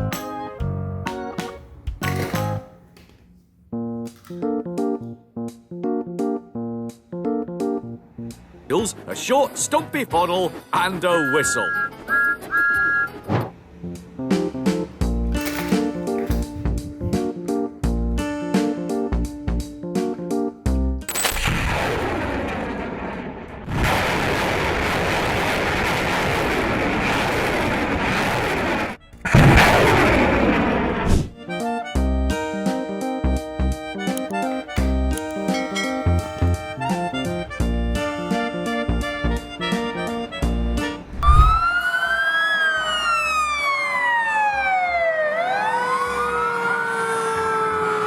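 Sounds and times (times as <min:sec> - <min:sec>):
wailing siren: 0:11.1 - 0:13.1, 0:41.3 - 0:48.0.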